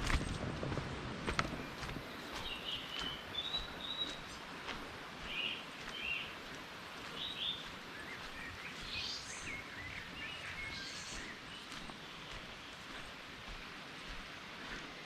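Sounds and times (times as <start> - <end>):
steady background hiss: 0.5 - 15.0
birds chirping and trilling: 1.5 - 4.4, 5.2 - 13.0.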